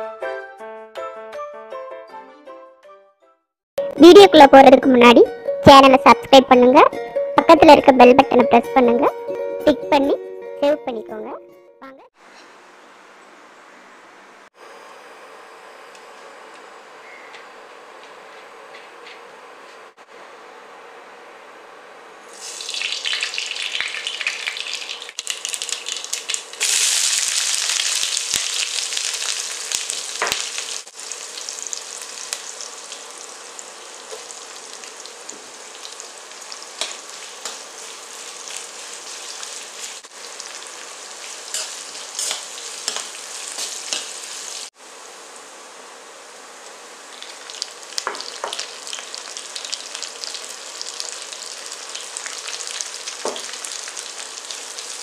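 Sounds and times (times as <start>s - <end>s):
hot oil sizzling: 22.3s - 45.6s, 46.6s - 55.0s
spatula stirring in a pan: 36.6s - 44.6s.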